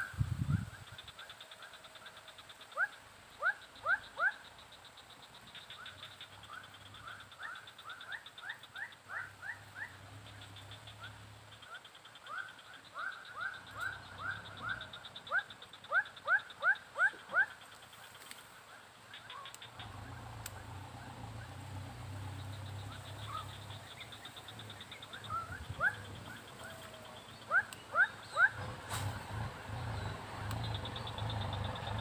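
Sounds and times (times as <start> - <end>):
passing vehicle engine hum: 8.1 - 11.6, 19.5 - 32.0
bird calling in rising notes: 19.1 - 32.0.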